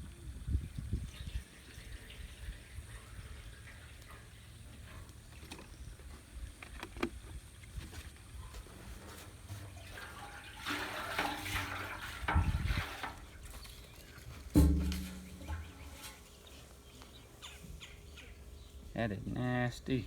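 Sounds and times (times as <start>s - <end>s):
liquid sloshing in metal tank: 9.4s - 16.6s.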